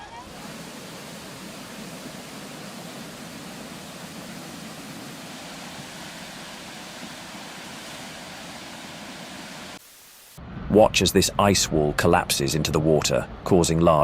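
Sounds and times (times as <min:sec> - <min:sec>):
floodwater rushing: 0:00.0 - 0:10.4.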